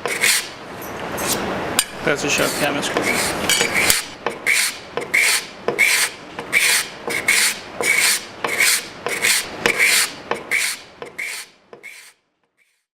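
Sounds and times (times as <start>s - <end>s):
cabinet scraper rasping on wood: 0.0s - 0.5s, 2.4s - 12.2s.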